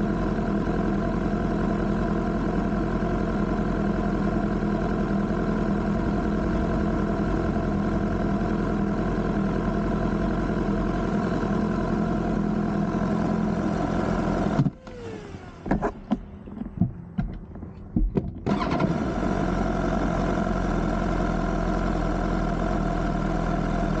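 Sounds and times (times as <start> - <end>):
motorcycle engine idling: 0.0 - 14.5, 19.4 - 24.0
sharp clicks and knocks: 15.6 - 18.5.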